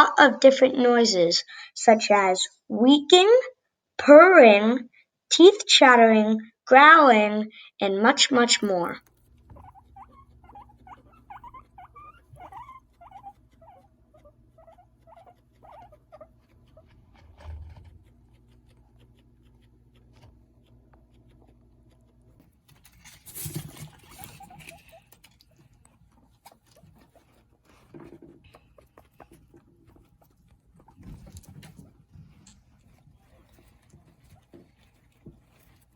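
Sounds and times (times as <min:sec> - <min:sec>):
guinea pigs squeaking: 0:08.5 - 0:35.9
rustling of movement: 0:08.6 - 0:35.9.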